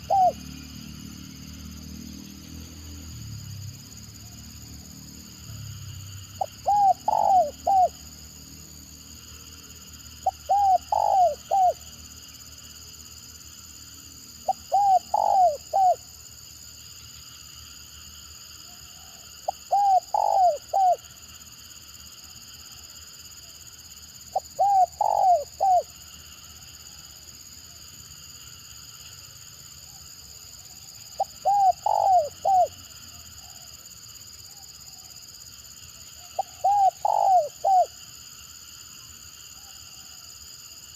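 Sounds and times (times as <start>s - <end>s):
dove cooing: 0.0s - 0.6s, 6.4s - 8.0s, 10.2s - 11.9s, 14.5s - 16.0s, 19.0s - 21.1s, 24.3s - 25.9s, 31.2s - 32.8s, 36.4s - 38.0s.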